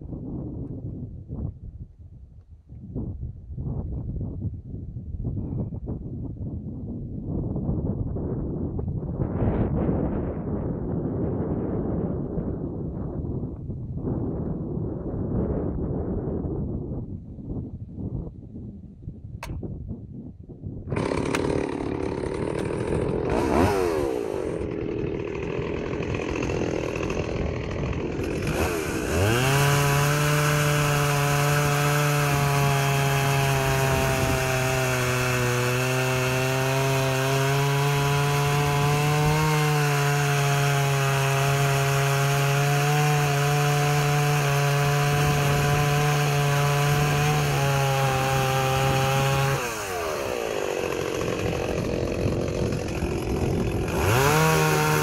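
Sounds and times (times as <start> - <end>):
chainsaw running: 20.9 - 55.0
chainsaw sawing through wood: 20.9 - 55.0.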